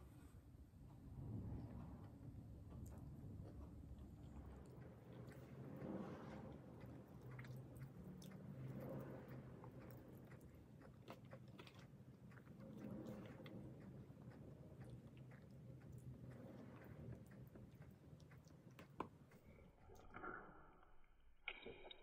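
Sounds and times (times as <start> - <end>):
person chewing: 4.2 - 19.5.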